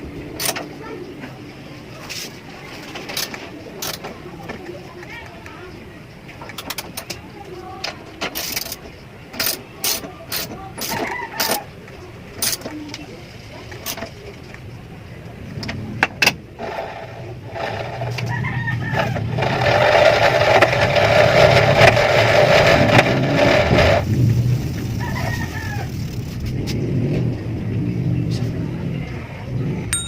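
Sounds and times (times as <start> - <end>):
rooster crowing: 18.2 - 19.4, 25.0 - 25.9.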